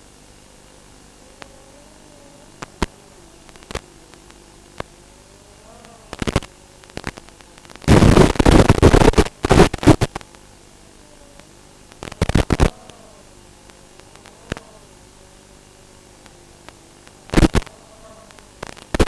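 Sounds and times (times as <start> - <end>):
loud static crackling: 0.0 - 19.0
sharp isolated clicks: 2.5 - 5.1, 5.7 - 10.6, 11.4 - 14.8, 16.0 - 19.0.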